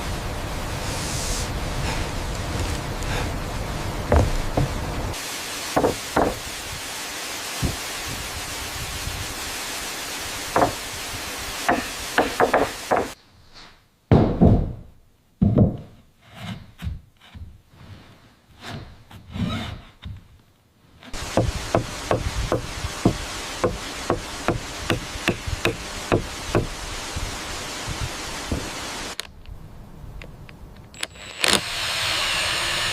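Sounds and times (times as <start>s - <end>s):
steady rushing background noise: 0.0s - 13.2s
hammer striking wood: 5.8s - 6.4s, 10.6s - 10.8s, 11.7s - 13.2s, 21.2s - 26.7s.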